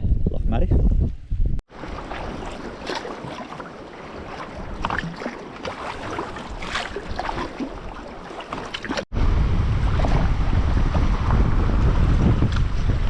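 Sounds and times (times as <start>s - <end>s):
wind buffeting microphone: 0.0s - 13.0s
water lapping around kayak: 1.7s - 9.1s
water plops and drips: 2.5s - 9.1s.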